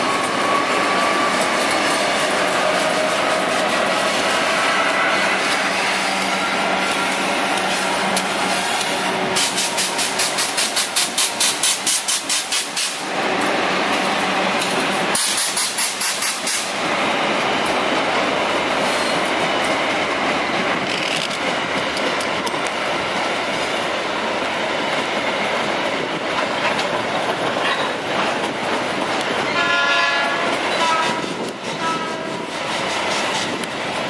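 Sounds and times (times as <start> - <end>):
freight train rumbling: 0.0 - 34.0
diesel locomotive horn: 29.5 - 32.5.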